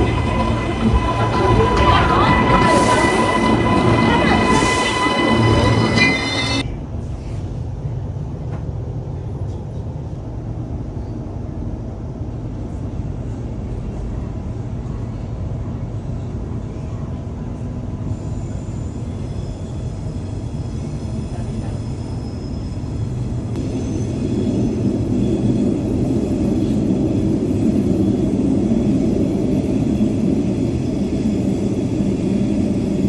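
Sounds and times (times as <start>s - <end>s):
faint high whine: 0.0s - 6.6s
electric train rumbling: 0.0s - 33.0s.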